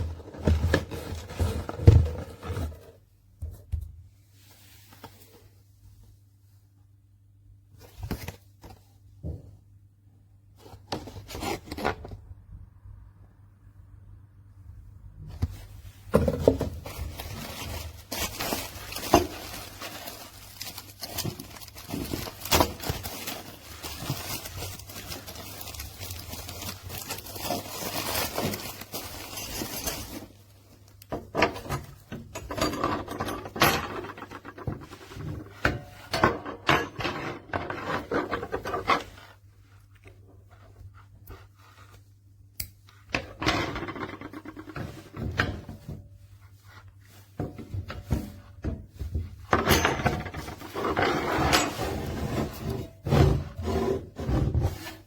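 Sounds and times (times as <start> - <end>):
objects rubbing and scraping: 15.5 - 30.4, 50.2 - 55.0.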